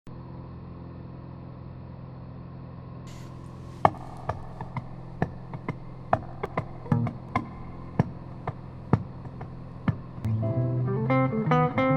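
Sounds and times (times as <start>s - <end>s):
propeller plane engine drone: 0.1s - 11.9s
plucked guitar notes: 10.2s - 11.9s.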